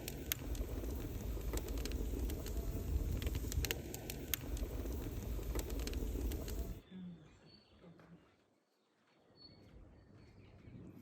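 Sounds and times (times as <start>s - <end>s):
wood fire crackling and popping: 0.0s - 6.8s.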